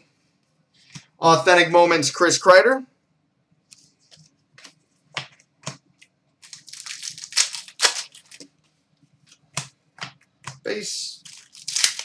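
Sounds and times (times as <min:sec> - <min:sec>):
foil wrapper crinkling and tearing: 0:06.4 - 0:08.5, 0:11.2 - 0:12.0.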